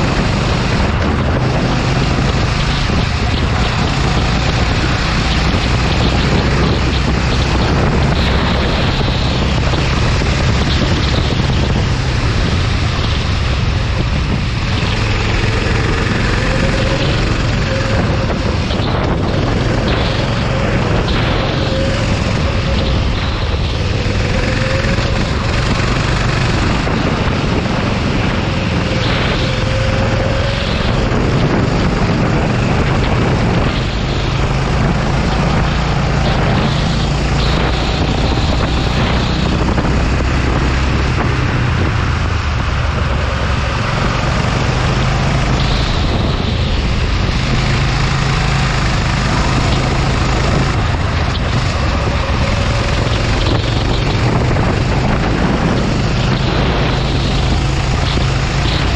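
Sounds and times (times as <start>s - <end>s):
go-kart engine revving: 0.0s - 58.9s
wind rushing: 0.0s - 58.9s.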